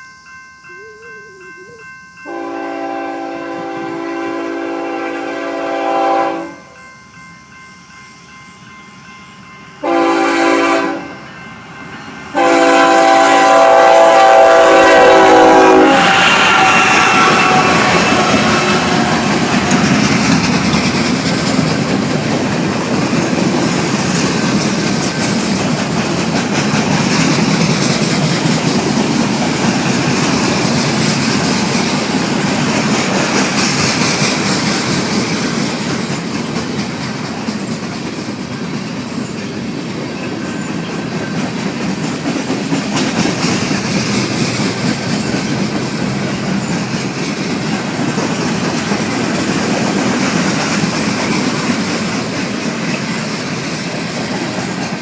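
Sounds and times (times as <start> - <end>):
train wheels clicking over rail joints: 16.9 - 55.0.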